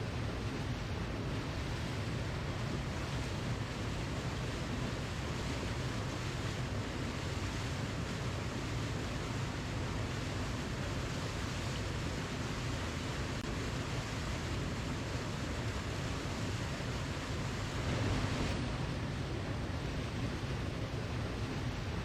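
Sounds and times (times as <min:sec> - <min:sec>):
waterfall roaring: 0:07.9 - 0:22.0.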